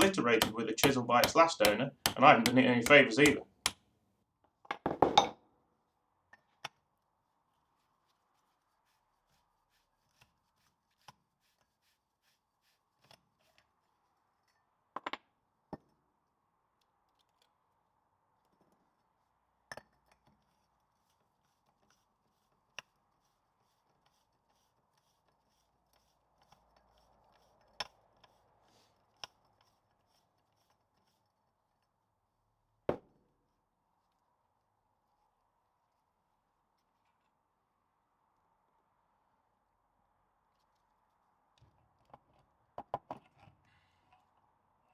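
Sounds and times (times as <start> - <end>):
metallic clicks of hand tools: 0.0 - 3.4
light knocks of steel parts: 0.0 - 3.7.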